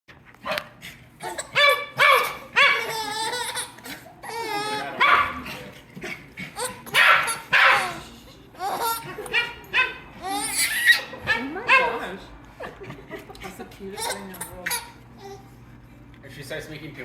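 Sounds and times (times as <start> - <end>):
dog barking and yipping: 0.4 - 4.0, 4.8 - 5.5, 6.6 - 8.0, 8.8 - 12.0
baby squealing and giggling: 1.2 - 5.0, 6.6 - 9.4, 10.2 - 11.2, 14.0 - 15.5.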